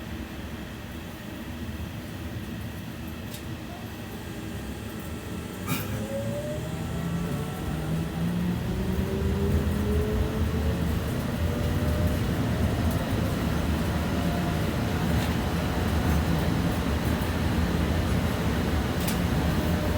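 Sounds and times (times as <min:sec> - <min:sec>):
tram wheels rumbling on rail: 0:03.3 - 0:19.9
traction drive whine: 0:04.0 - 0:19.9.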